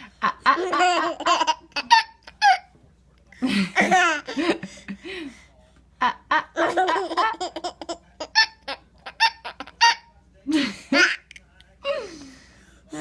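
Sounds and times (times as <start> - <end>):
baby laughing: 0.5 - 2.7, 6.6 - 10.1.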